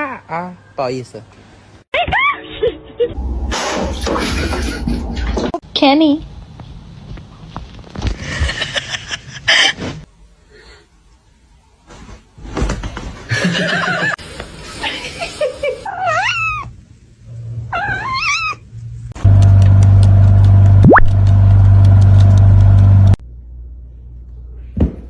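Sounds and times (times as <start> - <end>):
cat meowing: 15.9 - 16.7, 17.7 - 18.6.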